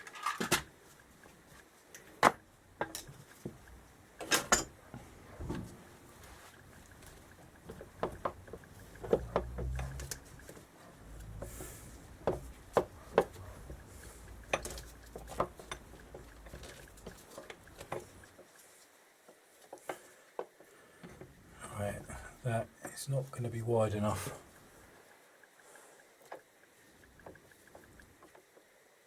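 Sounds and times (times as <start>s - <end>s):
engine parts and tools clicking: 2.8s - 18.4s.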